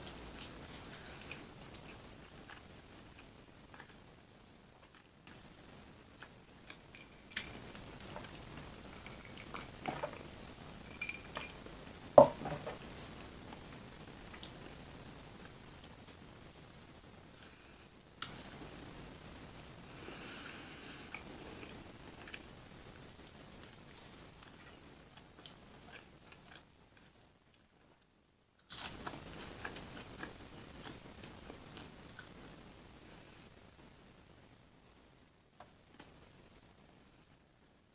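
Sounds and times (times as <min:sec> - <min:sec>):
person chewing: 0:00.1 - 0:04.0, 0:25.4 - 0:27.1, 0:28.7 - 0:32.5.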